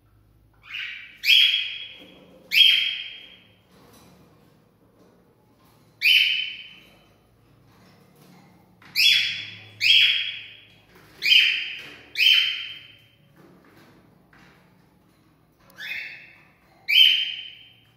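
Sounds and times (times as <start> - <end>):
cockatiel calling: 0.6 - 3.2, 11.2 - 12.9.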